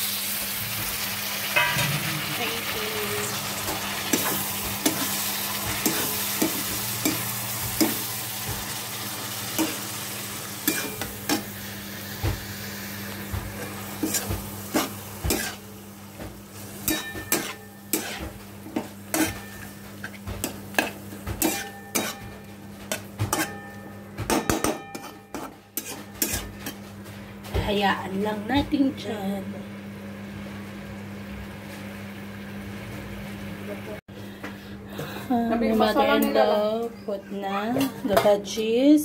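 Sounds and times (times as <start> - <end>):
vegetables sizzling in oil: 0.0 - 23.5, 24.4 - 26.8
metal spatula scraping a wok: 10.6 - 11.5, 13.9 - 15.6, 16.8 - 18.4, 19.1 - 23.7, 24.3 - 26.8.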